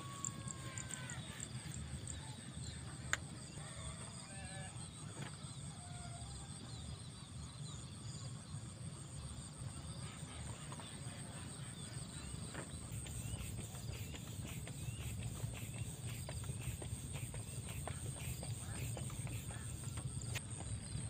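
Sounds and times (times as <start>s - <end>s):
birds chirping: 0.0s - 3.3s, 10.1s - 21.0s
high-pitched hum: 10.8s - 20.4s.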